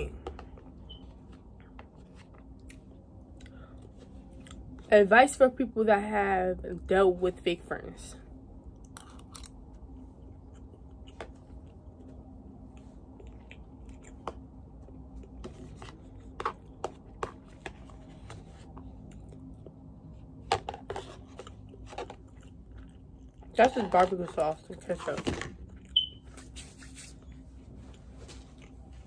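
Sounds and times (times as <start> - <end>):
steady low hum: 0.0 - 29.0
quiet chewing: 12.7 - 15.4, 21.4 - 23.6, 27.3 - 29.0.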